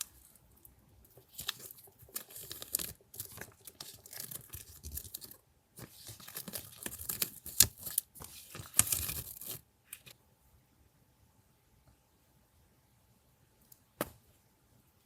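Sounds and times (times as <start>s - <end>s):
paper rustling and tearing: 1.3s - 10.1s.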